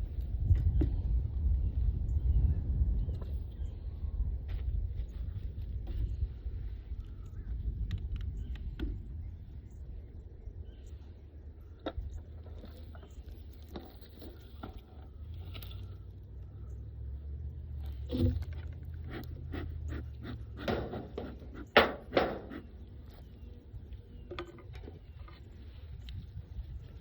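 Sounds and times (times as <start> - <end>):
steady low rumble: 0.0 - 27.0
beehive boxes scraping and knocking: 17.9 - 23.6.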